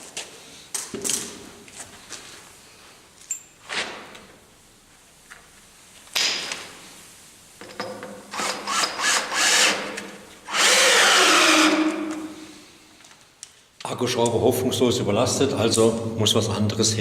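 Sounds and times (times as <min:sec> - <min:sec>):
cordless drill straining: 0:08.4 - 0:12.2.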